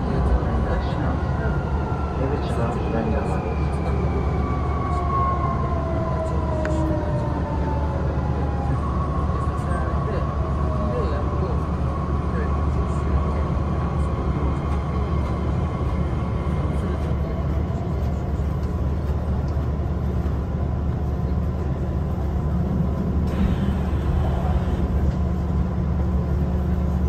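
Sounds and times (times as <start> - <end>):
train wheels rumbling on rails: 6.2 - 27.0.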